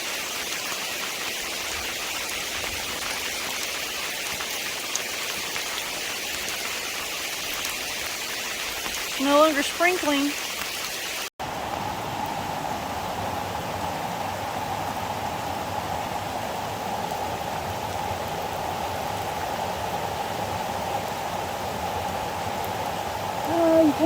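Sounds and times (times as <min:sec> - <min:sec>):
waterfall rushing: 0:20.8 - 0:24.0.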